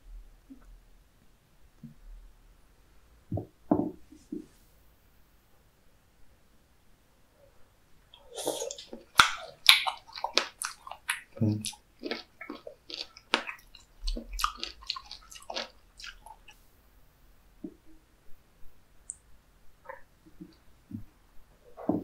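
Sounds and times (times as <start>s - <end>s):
wet sticky chewing smacks: 8.2s - 16.6s.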